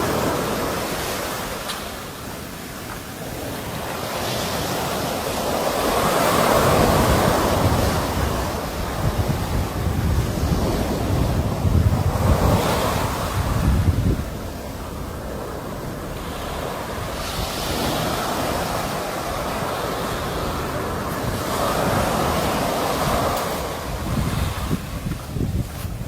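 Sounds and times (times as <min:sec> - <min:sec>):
sea waves breaking on shore: 0:00.0 - 0:26.0
wind buffeting microphone: 0:00.0 - 0:26.0.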